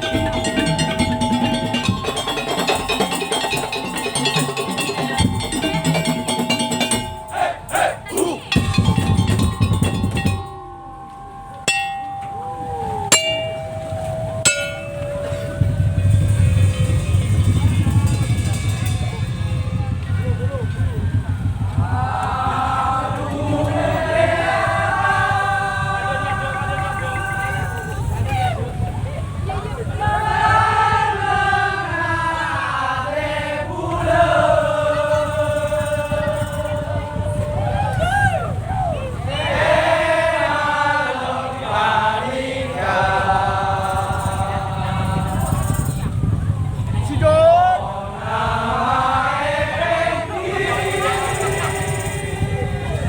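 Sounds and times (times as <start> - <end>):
drumming: 0.0 - 29.0, 33.1 - 40.9, 42.7 - 53.0
low rumble: 0.0 - 30.3
metal percussion ringing notes: 0.0 - 53.0.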